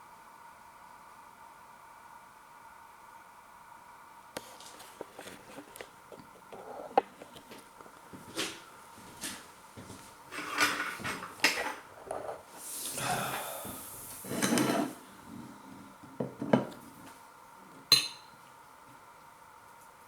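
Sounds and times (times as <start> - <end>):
cutlery scraping a dish: 10.3 - 12.4, 14.2 - 15.0.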